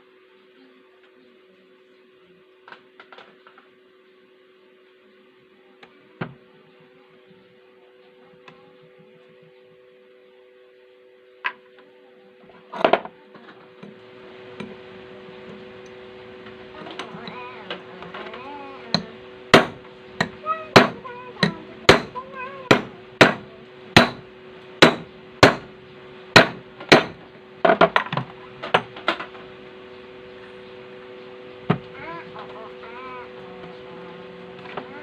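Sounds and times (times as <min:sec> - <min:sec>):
hammer striking metal: 0:18.9 - 0:27.2.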